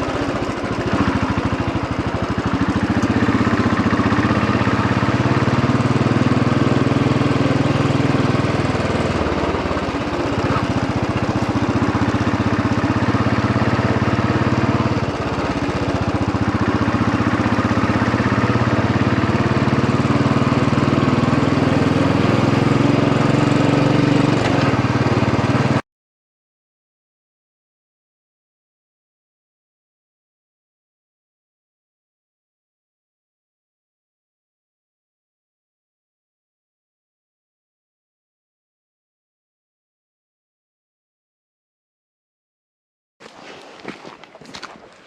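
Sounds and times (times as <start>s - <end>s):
single-cylinder engine running: 0.0s - 25.8s.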